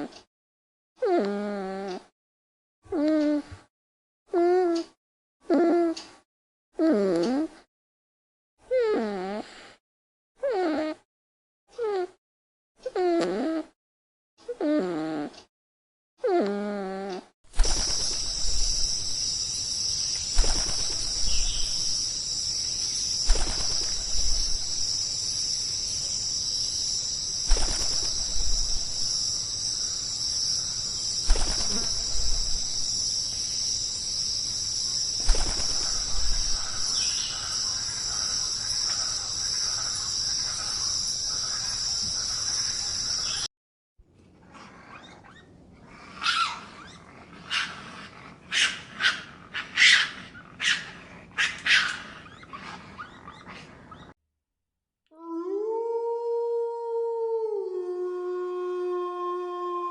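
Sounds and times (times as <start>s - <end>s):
insect chorus: 17.6s - 43.5s.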